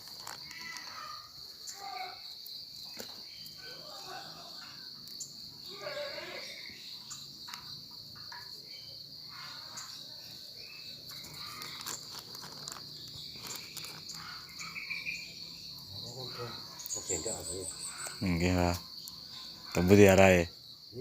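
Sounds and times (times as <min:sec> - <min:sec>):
rustles: 0:00.0 - 0:01.8, 0:11.0 - 0:15.2
crickets trilling: 0:00.0 - 0:21.0.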